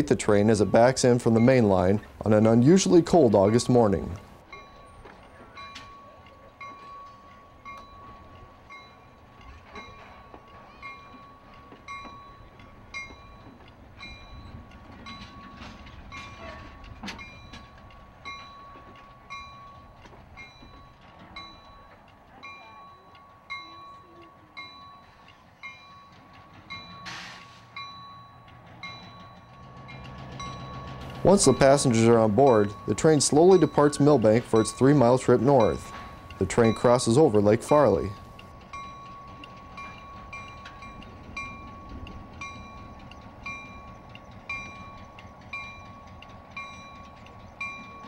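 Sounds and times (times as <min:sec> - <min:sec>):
locomotive bell ringing: 0:00.0 - 0:48.0
train wheels clicking on rails: 0:00.0 - 0:48.0
locomotive air hiss: 0:27.0 - 0:27.8.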